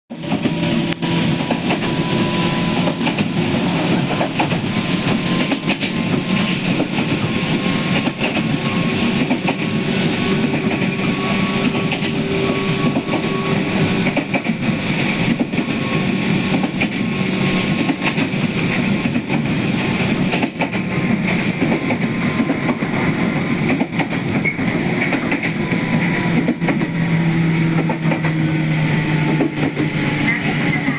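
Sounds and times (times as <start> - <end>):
electric train rumbling: 0.1 - 30.9
wheels clicking over rail joints: 23.6 - 27.0.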